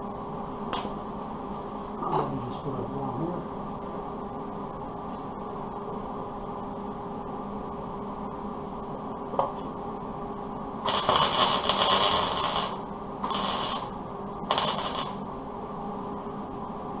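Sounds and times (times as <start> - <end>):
steady hum: 0.0 - 17.0
welding bursts: 10.8 - 15.2.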